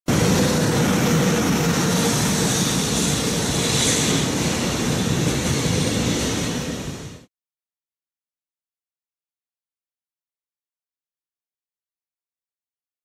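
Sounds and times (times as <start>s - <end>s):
train wheels running on rails: 0.1s - 7.3s.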